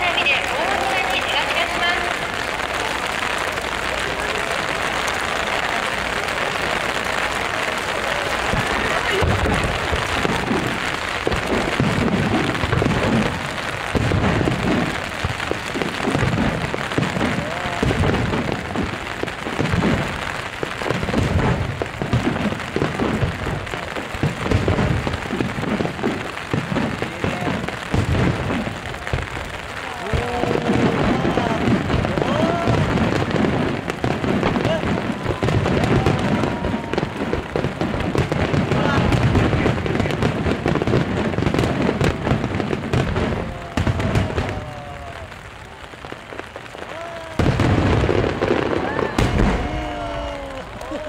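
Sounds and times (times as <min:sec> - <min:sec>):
voices: 0:00.0 - 0:46.0, 0:46.8 - 0:51.0
fireworks booming: 0:00.0 - 0:51.0
rain hissing: 0:00.0 - 0:51.0.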